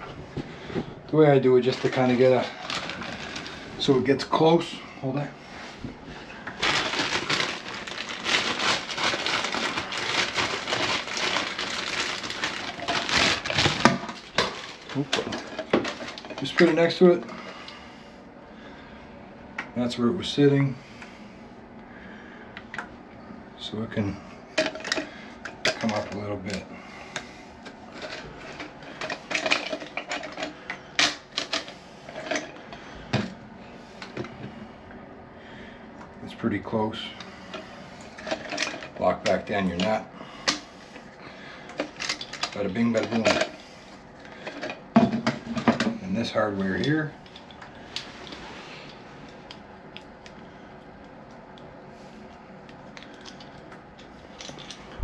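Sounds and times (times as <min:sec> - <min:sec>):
rustling: 0:06.5 - 0:16.5.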